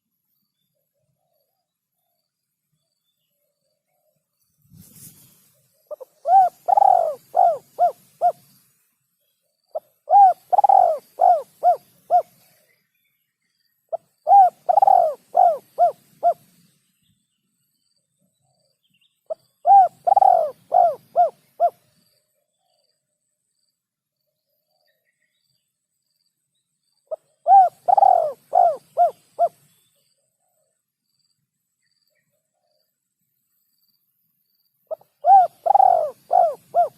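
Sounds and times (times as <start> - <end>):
dove cooing: 5.9 - 8.4, 9.8 - 12.4, 13.9 - 16.5, 19.3 - 21.8, 27.1 - 29.6, 34.9 - 36.9.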